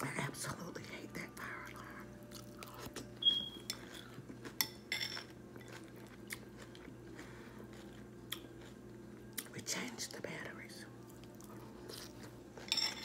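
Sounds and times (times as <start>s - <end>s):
chewing crunchy cereal: 1.6s - 3.1s, 3.7s - 9.6s, 11.0s - 12.7s.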